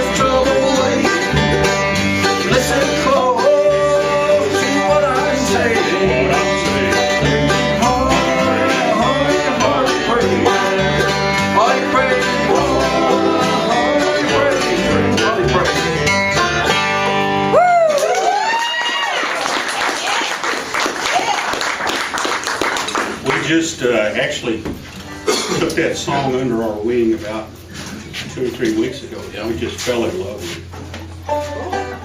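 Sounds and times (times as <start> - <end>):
acoustic bluegrass band playing: 0.0 - 18.1, 21.8 - 32.0.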